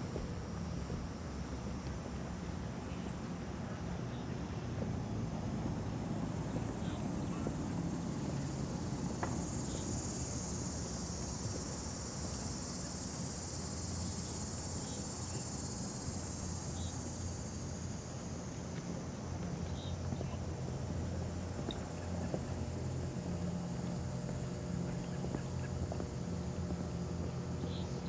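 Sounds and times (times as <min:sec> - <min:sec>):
cicada buzzing: 0:05.8 - 0:20.0.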